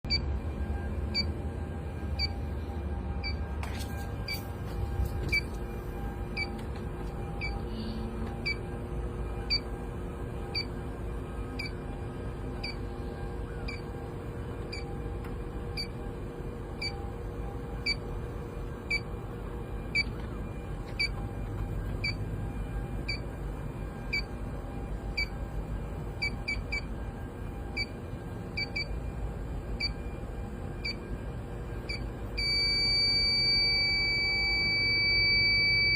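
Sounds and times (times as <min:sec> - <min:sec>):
leak detector beeping: 0:00.1 - 0:09.9, 0:10.5 - 0:10.8, 0:11.4 - 0:15.1, 0:15.7 - 0:16.0, 0:16.8 - 0:17.1, 0:17.8 - 0:18.2, 0:18.8 - 0:19.2, 0:19.8 - 0:25.5, 0:26.1 - 0:27.0, 0:27.7 - 0:28.0, 0:28.6 - 0:29.1, 0:29.8 - 0:31.2, 0:31.8 - 0:35.9
air conditioner humming: 0:00.1 - 0:35.9.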